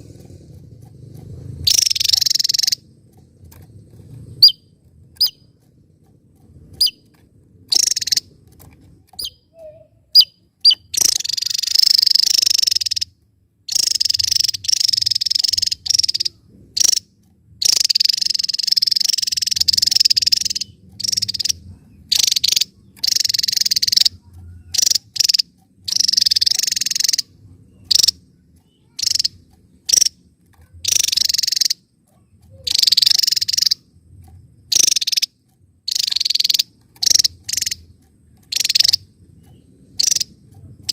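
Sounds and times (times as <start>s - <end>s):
bird song bursts: 1.6s - 2.8s, 4.3s - 5.5s, 6.7s - 7.1s, 7.7s - 8.3s, 9.1s - 13.1s, 13.7s - 17.0s, 17.6s - 30.2s, 32.5s - 33.8s, 34.7s - 37.9s
bird chirping: 1.6s - 6.1s, 6.7s - 40.9s.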